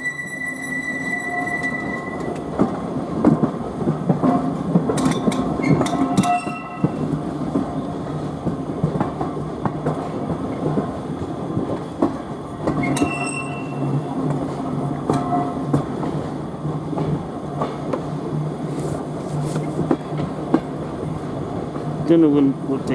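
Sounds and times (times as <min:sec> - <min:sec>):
high squeals: 0:00.0 - 0:02.3
train rumbling: 0:00.0 - 0:22.9.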